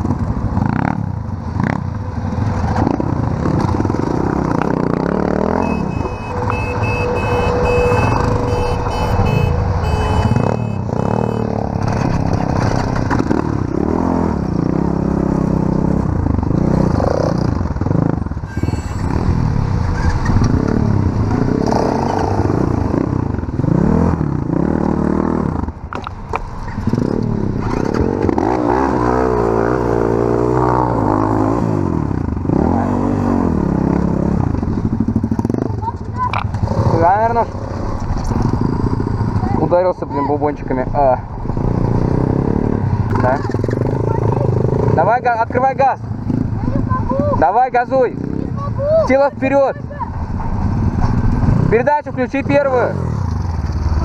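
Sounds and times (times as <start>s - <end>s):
motorbike engine revving: 0.0s - 25.8s, 26.7s - 39.7s.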